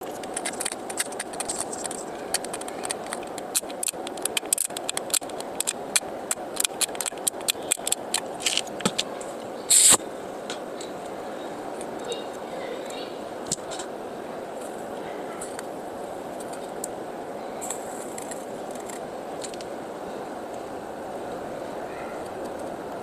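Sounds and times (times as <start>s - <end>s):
loud hiss: 0.0s - 21.9s
steady hum: 0.0s - 23.0s
metal tools clicking on circuit board: 0.2s - 8.3s.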